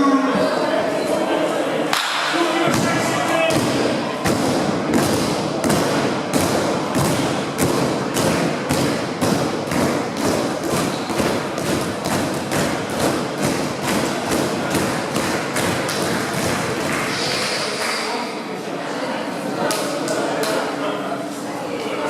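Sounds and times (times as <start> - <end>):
steady hum: 0.0 - 22.0
crowd stomping and clapping: 2.0 - 18.0.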